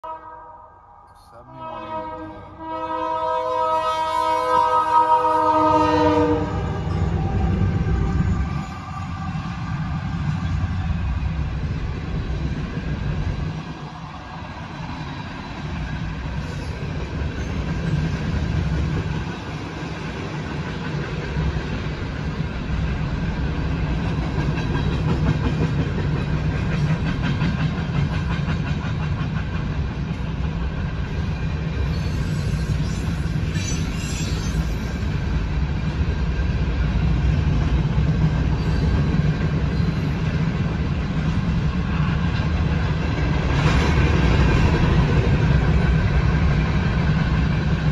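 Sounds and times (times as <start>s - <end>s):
freight train wheels rumbling on rail: 1.6s - 47.9s
clickety-clack over rail joints: 10.2s - 47.9s.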